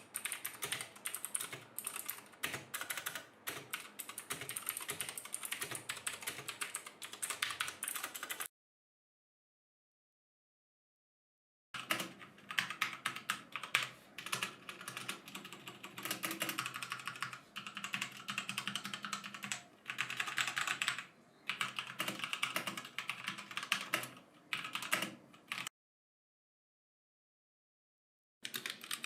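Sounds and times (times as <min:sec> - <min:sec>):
mechanical keyboard typing: 0:00.0 - 0:08.5, 0:11.8 - 0:25.7, 0:28.4 - 0:29.0.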